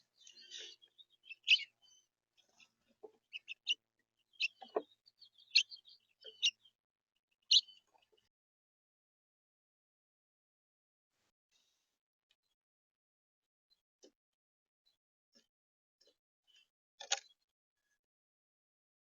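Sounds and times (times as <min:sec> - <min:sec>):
birds chirping: 0:00.0 - 0:06.8, 0:07.4 - 0:08.3.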